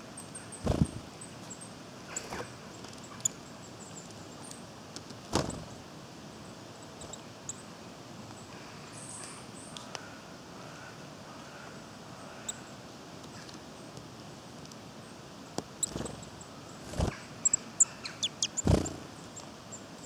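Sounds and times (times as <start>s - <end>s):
small birds high thin calls: 8.4s - 13.9s, 15.8s - 20.0s.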